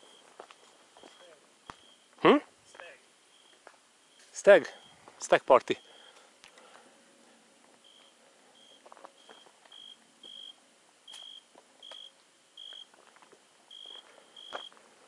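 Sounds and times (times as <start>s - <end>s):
footsteps: 0.0s - 1.9s, 7.6s - 10.4s, 12.7s - 14.9s.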